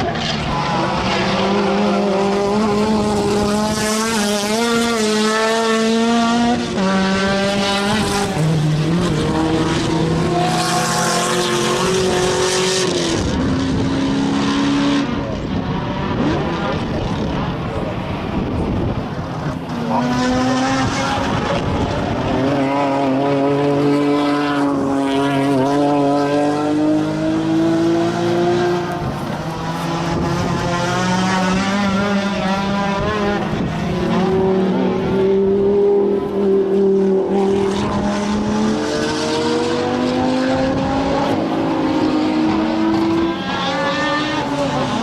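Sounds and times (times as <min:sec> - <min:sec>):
race car engines revving: 0:00.0 - 0:45.0.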